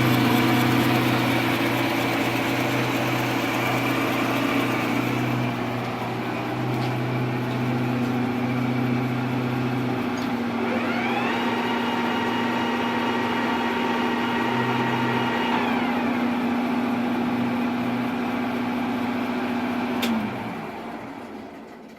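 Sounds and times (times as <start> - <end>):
rising machine whine: 0.0 - 16.6
metal lathe humming: 0.0 - 19.2.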